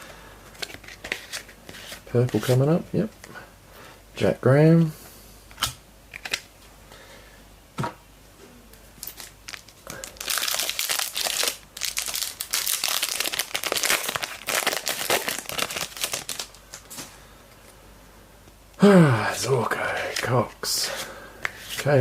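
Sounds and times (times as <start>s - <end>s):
wrapper tearing and crinkling: 9.0s - 16.9s.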